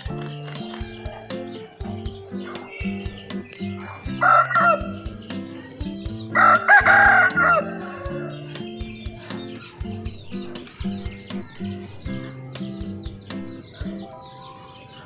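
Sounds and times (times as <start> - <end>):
background music with steady beat: 0.0 - 15.0
rooster crowing: 4.2 - 5.0, 6.3 - 8.4.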